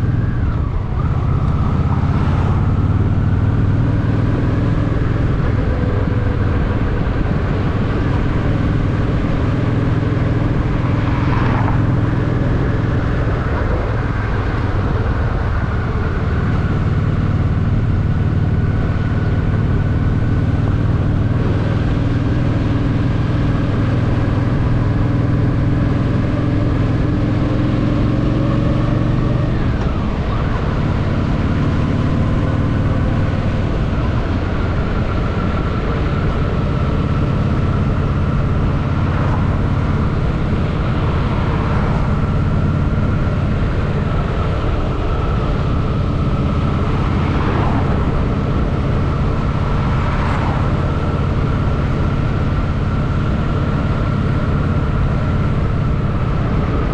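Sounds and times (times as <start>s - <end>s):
motorcycle engine rumble: 0.0s - 56.9s.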